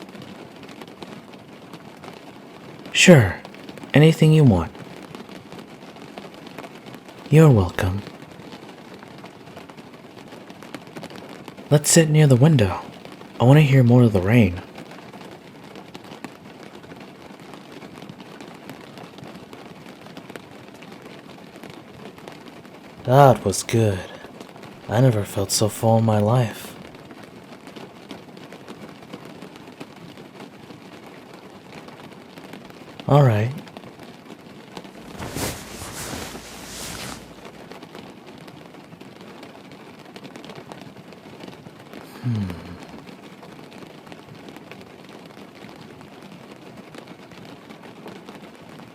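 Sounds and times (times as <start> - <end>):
steady rain falling: 0.0 - 48.9.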